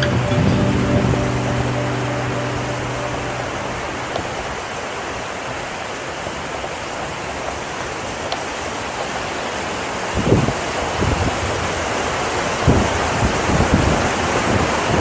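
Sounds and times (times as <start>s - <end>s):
river water rushing: 0.0s - 15.0s
wind buffets on microphone: 10.2s - 11.7s, 12.6s - 15.0s.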